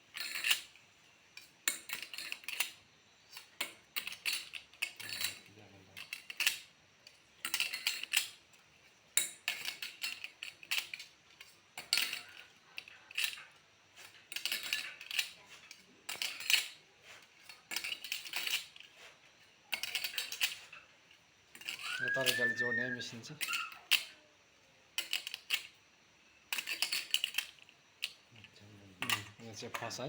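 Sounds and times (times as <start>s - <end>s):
metal parts clinking and rattling: 0.1s - 24.2s, 24.9s - 25.8s, 26.5s - 30.0s.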